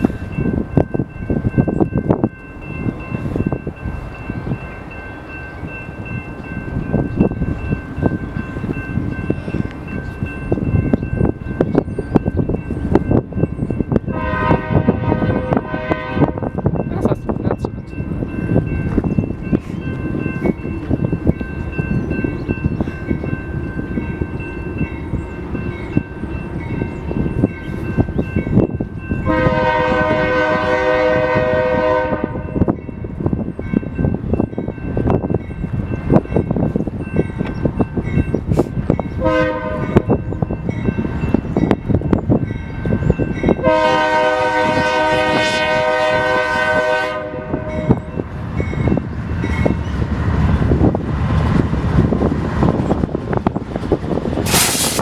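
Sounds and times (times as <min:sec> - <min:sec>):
train air horn blasts: 0:14.1 - 0:16.6, 0:29.2 - 0:32.6, 0:39.2 - 0:40.1, 0:43.6 - 0:48.0, 0:54.4 - 0:55.0
train wheels clattering on rails: 0:32.5 - 0:45.4, 0:47.8 - 0:55.0.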